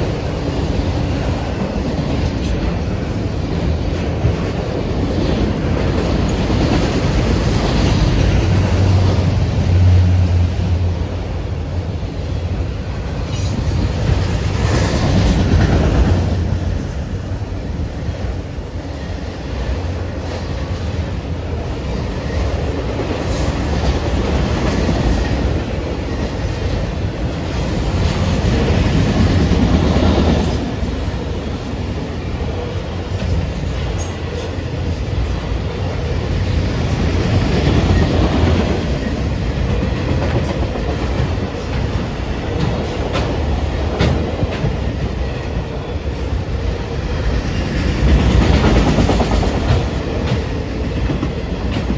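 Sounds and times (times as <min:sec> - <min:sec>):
train wheels rumbling on rails: 0:00.0 - 0:51.9
wheels clicking over rail joints: 0:36.2 - 0:46.4.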